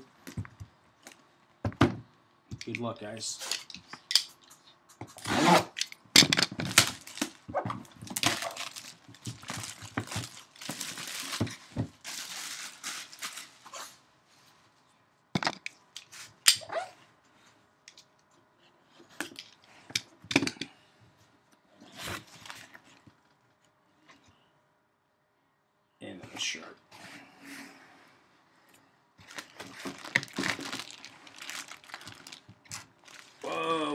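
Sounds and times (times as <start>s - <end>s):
wrapping and cardboard crinkling: 6.5s - 14.5s, 21.8s - 23.2s, 29.2s - 33.9s.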